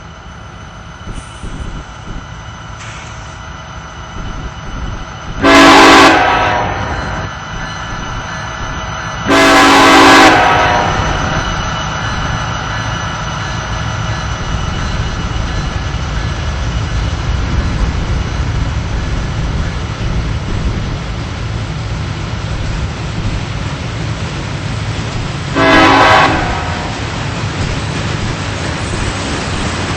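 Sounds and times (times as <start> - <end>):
train rumbling past: 0.0 - 29.9
locomotive horn blasts: 5.4 - 7.2, 9.3 - 11.4, 25.5 - 27.1.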